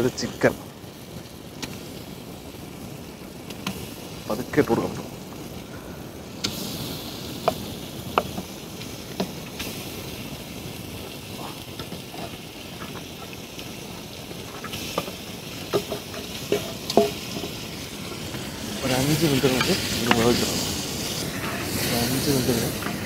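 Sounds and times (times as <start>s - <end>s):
food sizzling in a pot: 0.0s - 23.0s
wooden spatula knocking a bowl: 15.7s - 17.5s.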